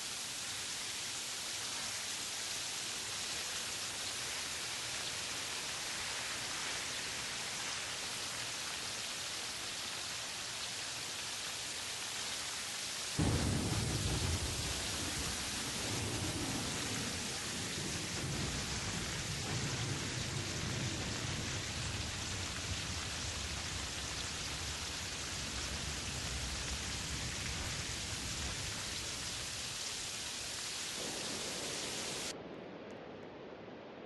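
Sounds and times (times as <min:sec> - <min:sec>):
rain hissing: 0:00.0 - 0:32.4
thunder rumbling: 0:13.2 - 0:29.6, 0:31.0 - 0:34.0.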